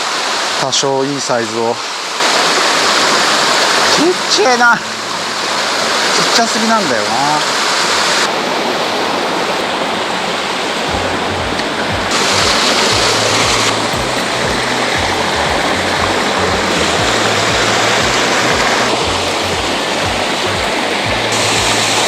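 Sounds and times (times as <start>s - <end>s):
rushing stream water: 0.0s - 22.0s
music with deep bass beat: 10.9s - 22.0s.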